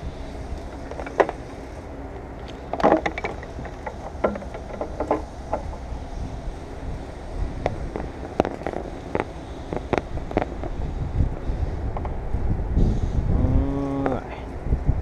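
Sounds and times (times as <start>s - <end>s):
steady low rumble: 0.0s - 15.0s
sharp clicks and knocks: 0.6s - 1.4s, 2.4s - 5.8s.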